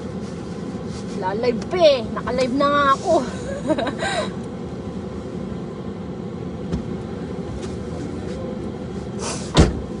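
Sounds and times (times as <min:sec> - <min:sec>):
car engine idling: 0:00.0 - 0:10.0
loud thump: 0:09.5 - 0:09.9.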